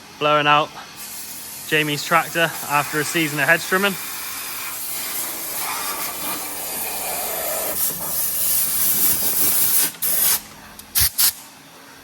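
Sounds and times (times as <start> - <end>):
compressed air blow gun hissing: 1.0 - 10.4.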